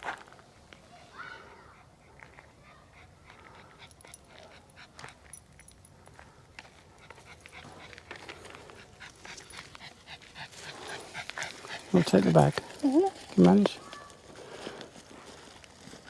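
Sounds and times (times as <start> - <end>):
dog panting: 1.5 - 13.4.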